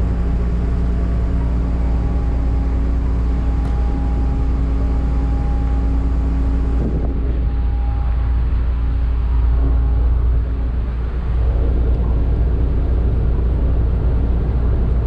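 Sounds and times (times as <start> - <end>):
ship engines humming: 0.0 - 15.0.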